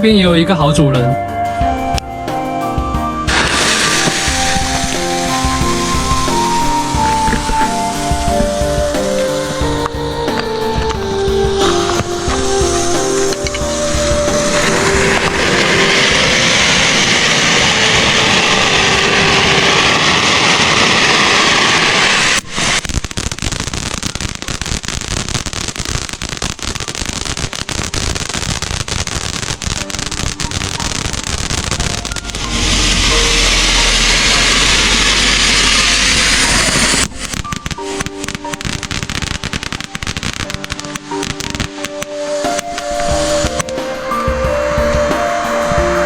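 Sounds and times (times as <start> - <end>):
fireworks dense crackling: 0.0 - 46.0
fireworks sparks hissing: 2.0 - 46.0.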